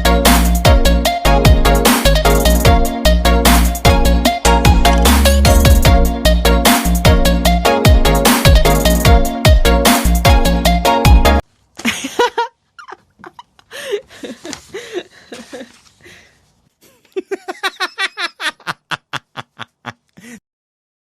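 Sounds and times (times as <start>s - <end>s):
person laughing: 11.8s - 15.9s, 16.8s - 20.4s.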